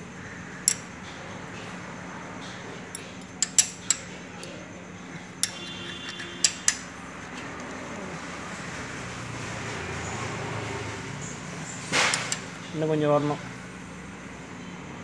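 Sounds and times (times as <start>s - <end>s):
metal tools clinking on engine parts: 0.6s - 1.0s, 2.9s - 4.6s, 5.2s - 6.9s, 12.0s - 12.6s.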